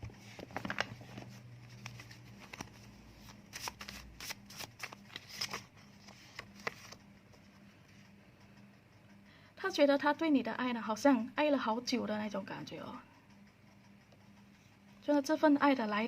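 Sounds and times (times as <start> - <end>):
paper cards being shuffled: 0.1 - 7.0.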